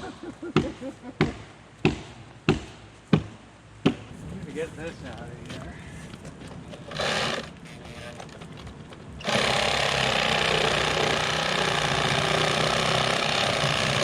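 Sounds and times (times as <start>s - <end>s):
reciprocating saw cutting log: 6.9s - 8.2s, 9.2s - 14.0s.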